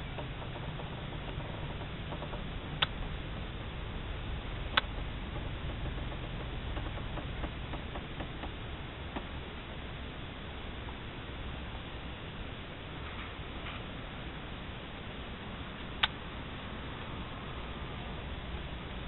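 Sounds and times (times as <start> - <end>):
drizzle ticking on car roof: 0.0 - 10.0
sharp clicks: 4.7 - 8.6.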